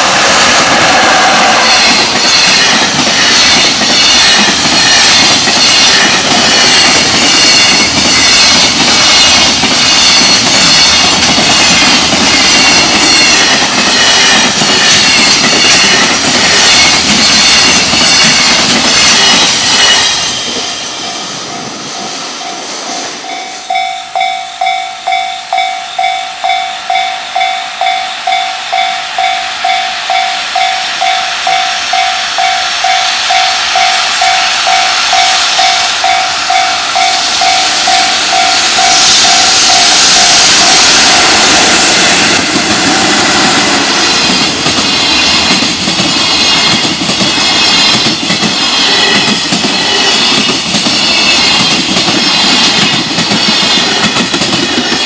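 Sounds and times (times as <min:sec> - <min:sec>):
freight train rumbling past: 0:00.0 - 0:55.0
level-crossing bell ringing: 0:16.7 - 0:40.9.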